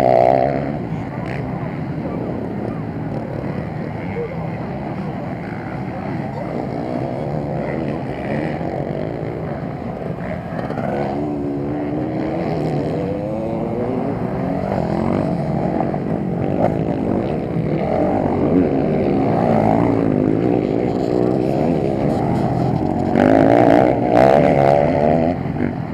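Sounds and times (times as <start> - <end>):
motocross engines revving: 0.0 - 25.9.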